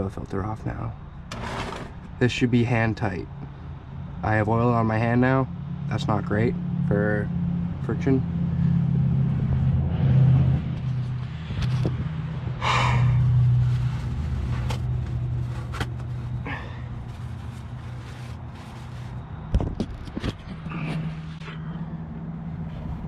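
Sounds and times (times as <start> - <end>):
low rumbling hum: 5.0 - 23.0.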